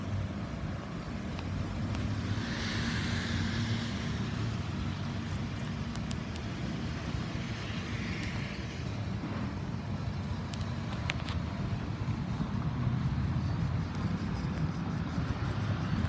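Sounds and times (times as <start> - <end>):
car engine idling: 0.0 - 14.4
light clicks: 1.3 - 2.2, 5.6 - 6.9, 10.4 - 11.7.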